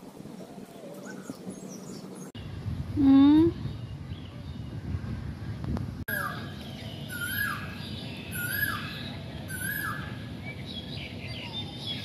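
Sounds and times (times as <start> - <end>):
bird calling with downward note: 6.1 - 10.6.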